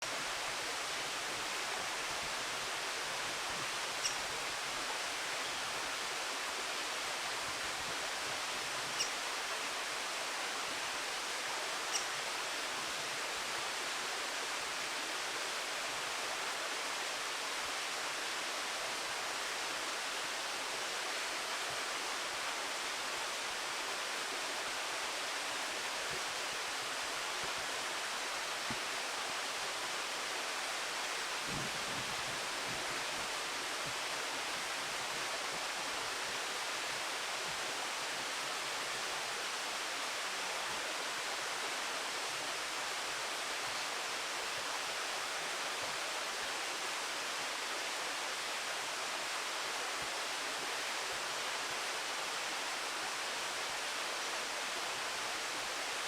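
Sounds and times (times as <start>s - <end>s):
high-pitched bird calls: 4.0s - 4.2s.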